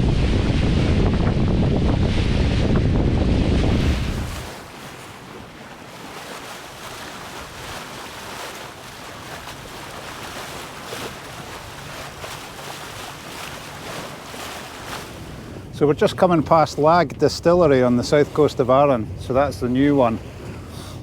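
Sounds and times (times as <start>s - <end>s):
wind noise: 0.0s - 4.8s
water rushing along a hull: 0.0s - 21.0s.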